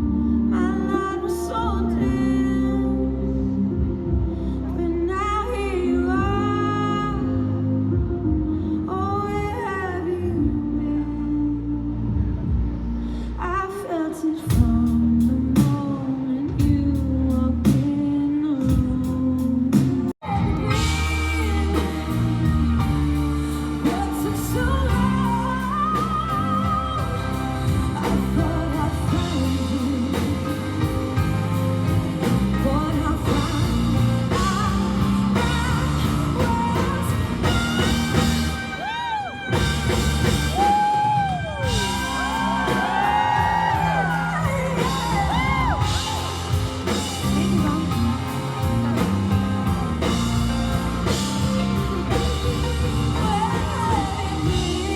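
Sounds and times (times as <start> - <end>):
guitar: 0.0 - 54.9
woman singing: 0.0 - 54.9
pop-rock band playing: 12.0 - 54.9.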